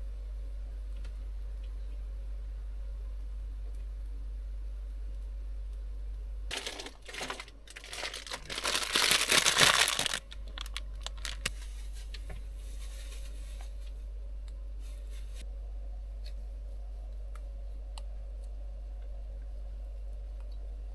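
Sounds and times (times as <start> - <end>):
packaging crinkling: 6.5 - 13.4.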